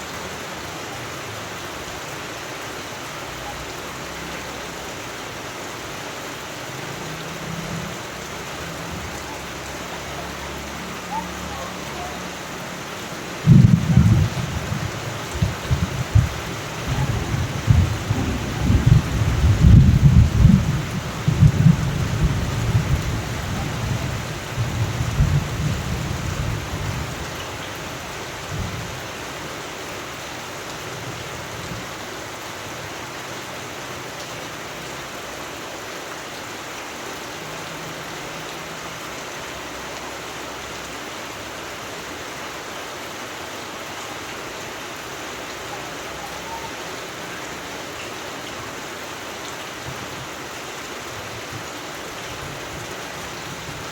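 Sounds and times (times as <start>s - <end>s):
rain falling: 0.0s - 53.9s
thunder rumbling: 13.4s - 27.2s.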